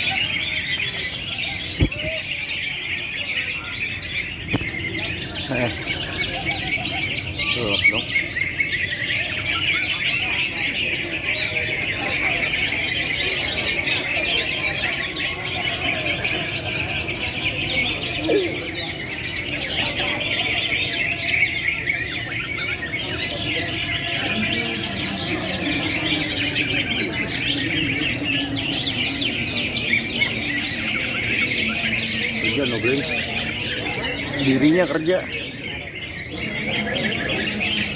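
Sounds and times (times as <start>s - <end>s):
songbirds chirping and trilling: 0.0s - 37.9s.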